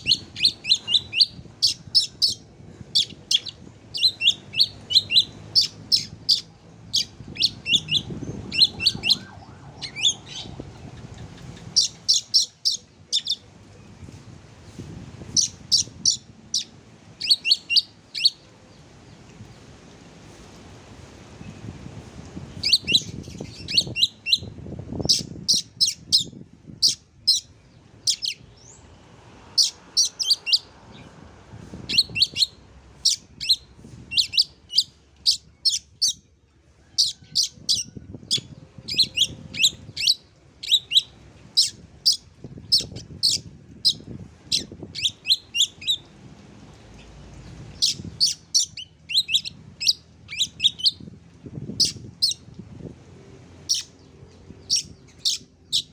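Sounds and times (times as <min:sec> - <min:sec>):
bird singing sharp high notes: 0:07.0 - 0:10.6.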